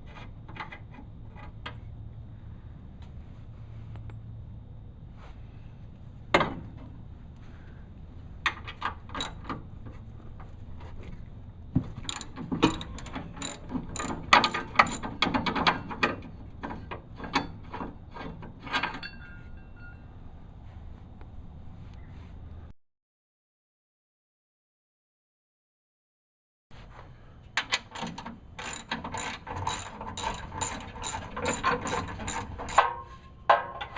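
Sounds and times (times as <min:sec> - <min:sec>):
ratchet wrench clicking: 0:12.0 - 0:15.2, 0:28.0 - 0:32.9.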